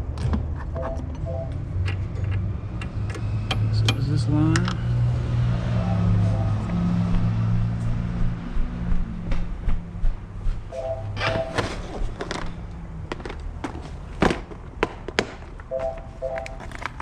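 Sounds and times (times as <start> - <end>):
two-note tone: 0.8 - 1.6, 5.6 - 7.1, 10.7 - 11.6
tools and parts clicking: 1.8 - 4.8
low hum: 4.6 - 12.8.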